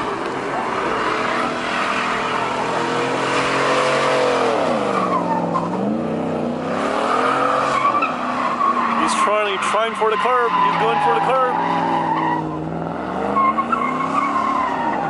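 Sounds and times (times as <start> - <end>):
car engine revving hard: 0.0 - 15.0
tyres squealing: 7.0 - 15.0.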